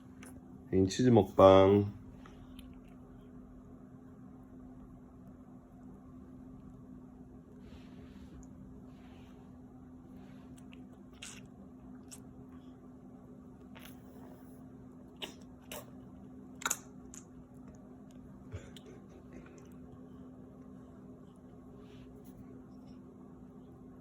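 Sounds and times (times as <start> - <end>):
steady low hum: 0.0 - 24.0
cheese being chewed: 2.2 - 3.4, 10.4 - 12.7, 13.3 - 23.1.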